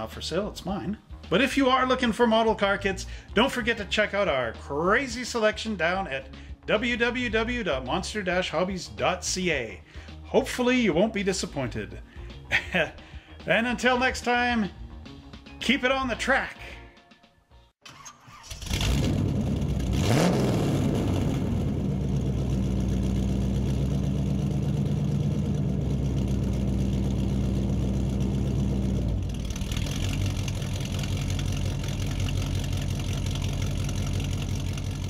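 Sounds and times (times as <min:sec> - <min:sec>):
car engine starting and running: 0:17.8 - 0:35.0.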